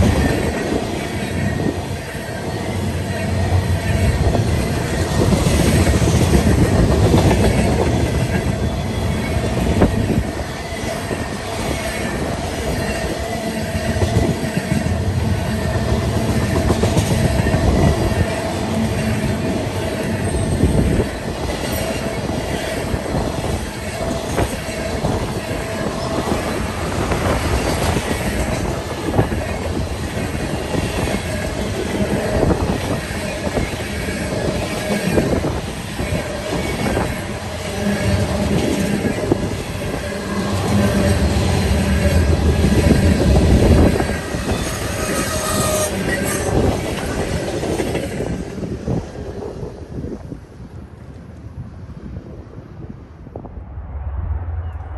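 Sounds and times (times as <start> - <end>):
wheels squealing against rails: 0.0 - 48.0
deep rumble: 53.1 - 54.9.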